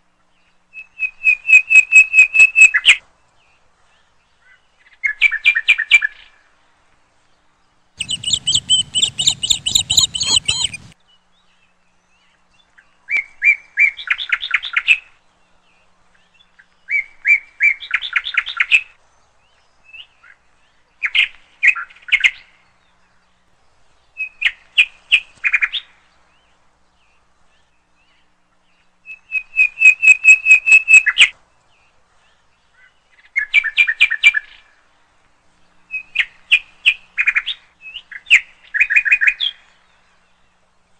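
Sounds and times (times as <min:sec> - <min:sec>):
songbird chirping: 0:08.0 - 0:12.8, 0:26.1 - 0:34.7.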